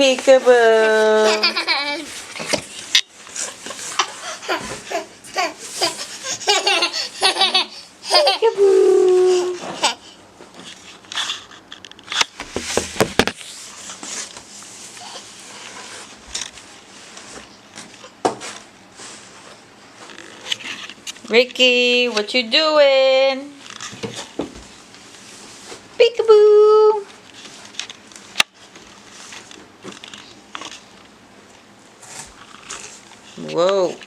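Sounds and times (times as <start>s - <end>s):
toddler giggling: 1.2s - 2.1s, 4.0s - 10.1s
short knocks or rustles: 12.2s - 13.4s.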